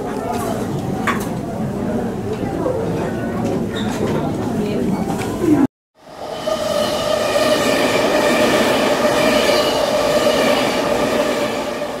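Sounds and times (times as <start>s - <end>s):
train rumbling on rails: 6.0s - 12.0s.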